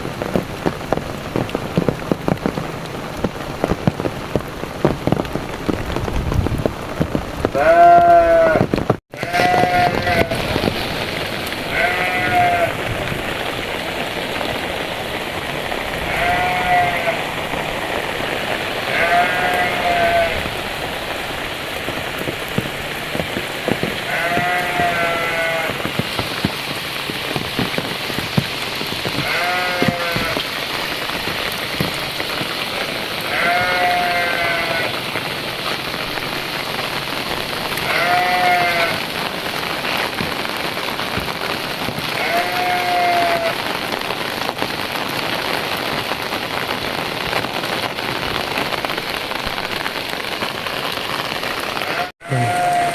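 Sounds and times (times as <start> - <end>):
heavy rain falling: 0.0 - 52.9
animal's short pitched call: 51.9 - 52.9.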